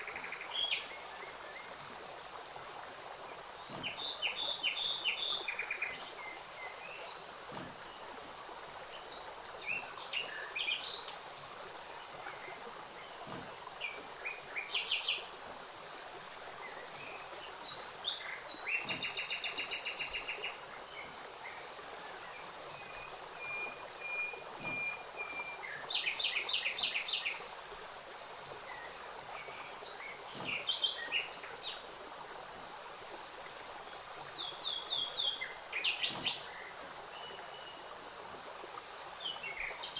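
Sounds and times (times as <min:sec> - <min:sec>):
steady hiss: 0:00.0 - 0:39.9
small birds singing: 0:03.3 - 0:08.2, 0:16.6 - 0:27.5, 0:28.6 - 0:31.9, 0:33.9 - 0:37.8.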